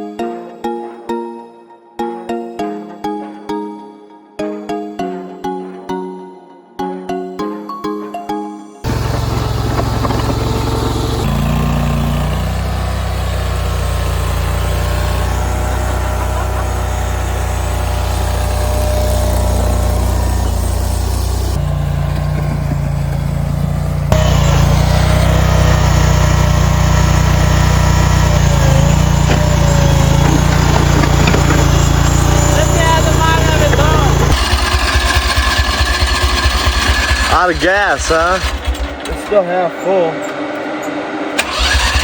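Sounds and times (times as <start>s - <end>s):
small gasoline engine running: 8.8s - 42.0s.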